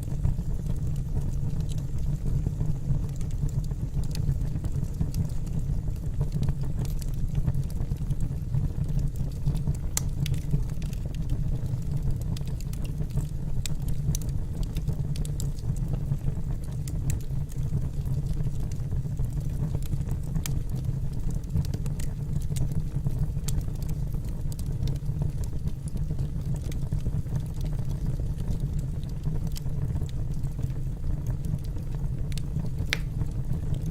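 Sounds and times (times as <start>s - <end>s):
low fire rumble: 0.0s - 33.9s
logs crackling with sharp pops: 9.4s - 11.2s, 31.5s - 33.9s.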